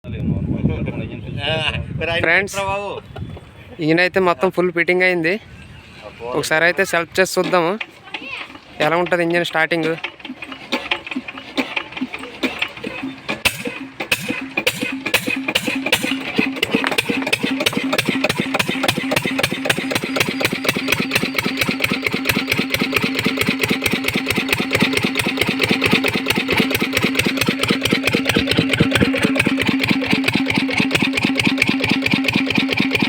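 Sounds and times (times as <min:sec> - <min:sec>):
diesel engine running: 0:06.8 - 0:33.0.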